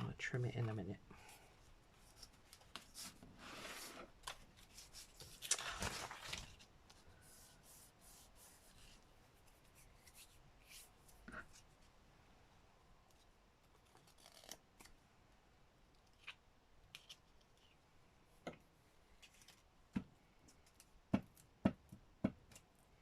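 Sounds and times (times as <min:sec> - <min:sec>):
paper rustling: 0:02.0 - 0:09.0.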